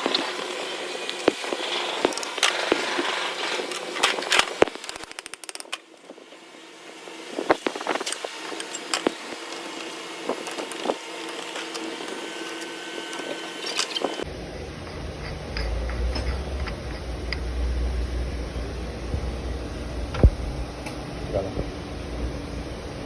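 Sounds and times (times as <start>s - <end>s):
mechanical clicks and knocks: 4.1s - 5.8s.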